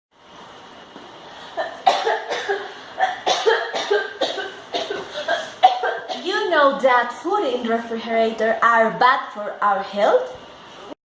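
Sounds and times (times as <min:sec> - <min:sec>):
person coughing: 0:01.5 - 0:06.3.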